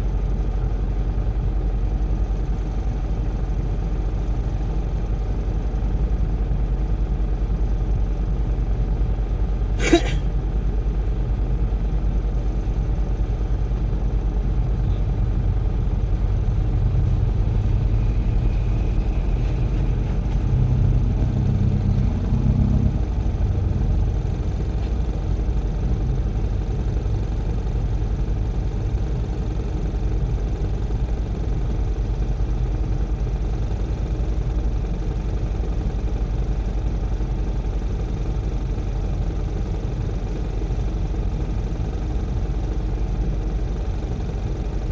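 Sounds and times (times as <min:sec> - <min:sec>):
heavy diesel engine rumbling: 0:00.0 - 0:44.9.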